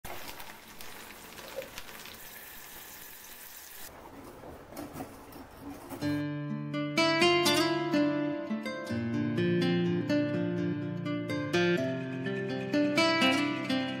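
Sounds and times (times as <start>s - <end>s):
vegetables sizzling: 0.0s - 4.0s
acoustic guitar music: 5.8s - 14.0s.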